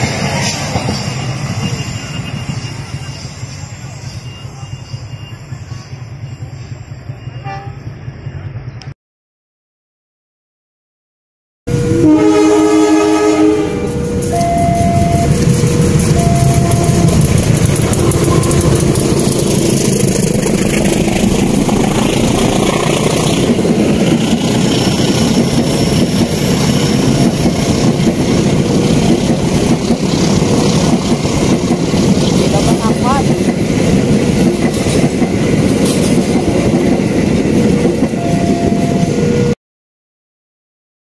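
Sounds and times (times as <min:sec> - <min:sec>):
train passing with rumble: 0:00.0 - 0:08.9, 0:11.7 - 0:39.6
train horn blast: 0:07.3 - 0:07.9, 0:11.7 - 0:19.6
wheels clattering over rails: 0:13.9 - 0:38.3.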